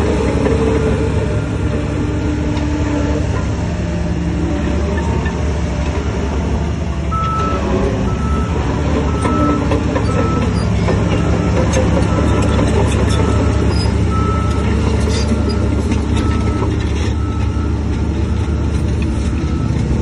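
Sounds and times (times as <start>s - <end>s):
heavy diesel machinery running: 0.0s - 20.0s
reversing alarm beeping: 7.1s - 20.0s.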